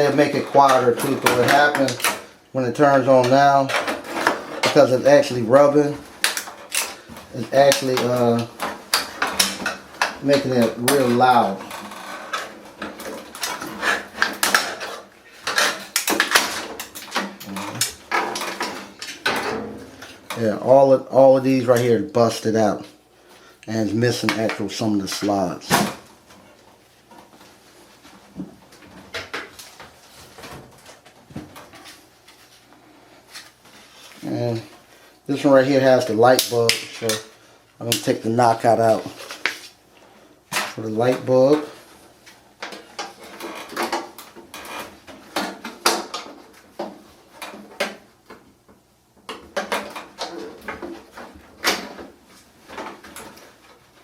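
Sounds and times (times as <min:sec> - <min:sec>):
knocks and clicks of dryer parts: 0:15.5 - 0:20.4.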